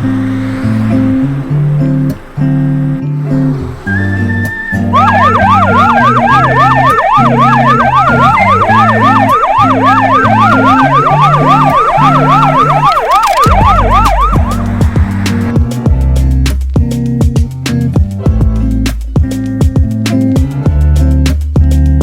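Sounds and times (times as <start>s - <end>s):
background music: 0.0s - 22.0s
electronic siren yelping: 3.3s - 15.5s.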